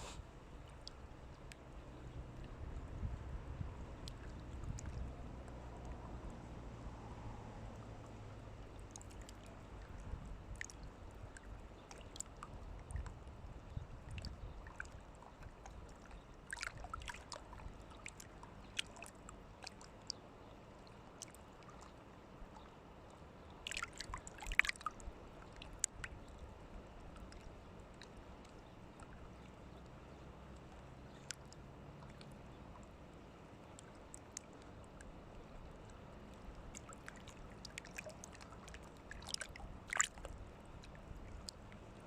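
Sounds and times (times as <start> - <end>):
faint low rumble: 0.0 - 42.0
water sloshing and splashing: 4.0 - 6.2, 7.8 - 13.1, 14.1 - 20.2, 23.5 - 29.2, 33.7 - 42.0.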